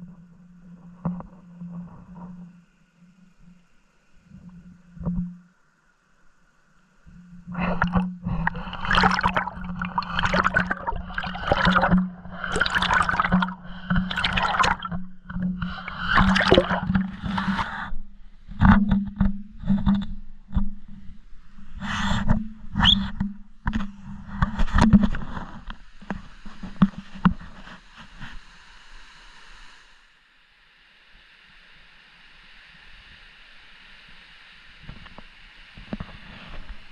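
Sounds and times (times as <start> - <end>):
underwater knocks and scrapes: 0.0 - 2.5, 4.4 - 5.4, 7.2 - 28.4, 34.9 - 36.9
muffled underwater gurgling: 7.2 - 25.5.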